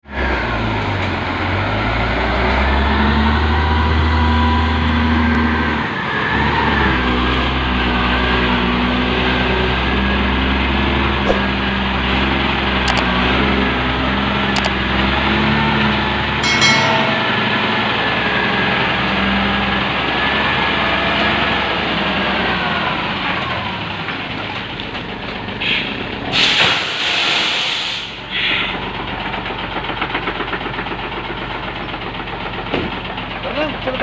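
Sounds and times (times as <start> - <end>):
truck engine running: 28.8 - 34.0.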